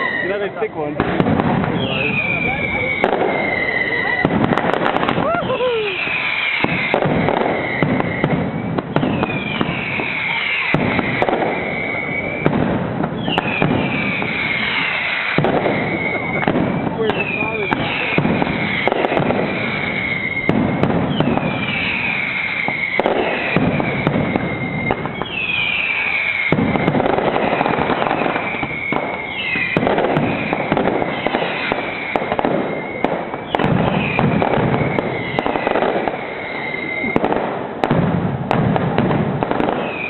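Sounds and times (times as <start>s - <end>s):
high whistles dropping in pitch: 0.0s - 0.6s, 1.7s - 4.2s, 5.2s - 8.3s, 8.9s - 12.5s, 17.1s - 37.2s
dense firework crackling: 0.0s - 40.0s
fireworks bangs: 0.0s - 40.0s.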